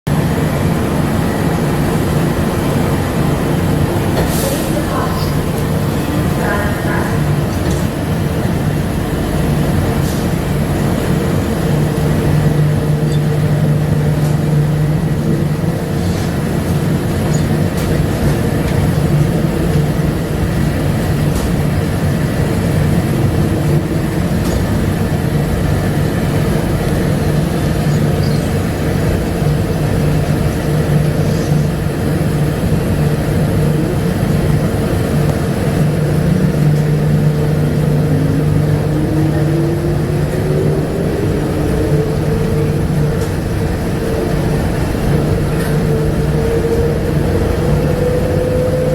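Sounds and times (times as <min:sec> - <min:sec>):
rising whine of train: 0:00.1 - 0:48.9
train running drone: 0:00.1 - 0:48.9.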